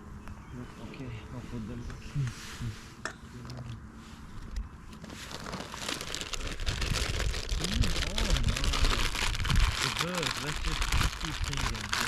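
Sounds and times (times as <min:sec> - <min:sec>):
crinkling rustling with crackles: 0:04.9 - 0:12.0.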